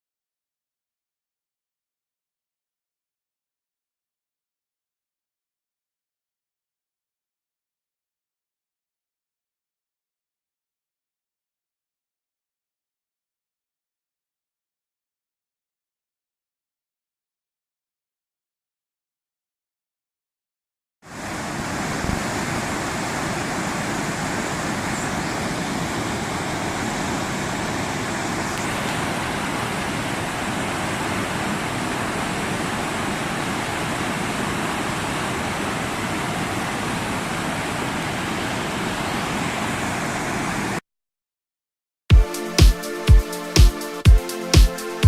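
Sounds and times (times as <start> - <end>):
waterfall roaring: 21.1 - 40.8
electronic music with beat: 42.1 - 45.0.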